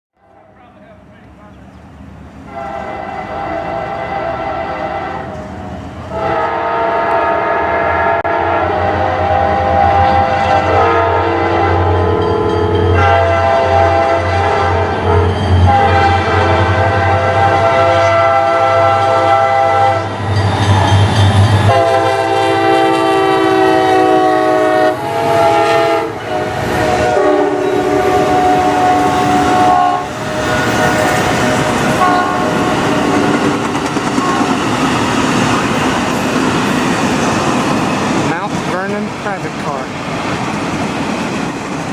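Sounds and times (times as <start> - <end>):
train rumbling past: 0.2 - 41.9
locomotive air horn blasts: 2.5 - 5.5, 6.1 - 12.2, 13.0 - 20.1, 21.7 - 33.4.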